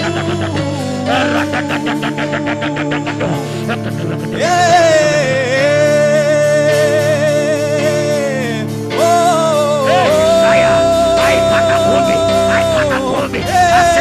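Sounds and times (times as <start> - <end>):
sustained keyboard drone: 0.0 - 5.6, 9.9 - 14.0
person singing long note: 9.0 - 14.0.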